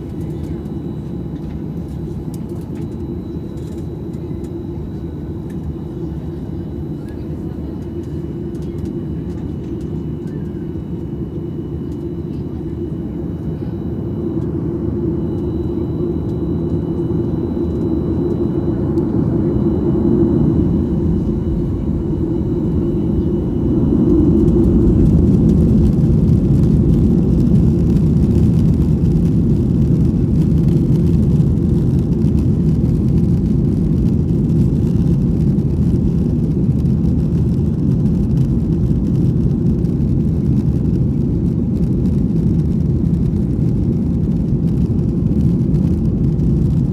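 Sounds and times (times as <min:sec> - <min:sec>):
jet engines rumbling: 0:00.0 - 0:46.9
high whine: 0:12.8 - 0:44.9.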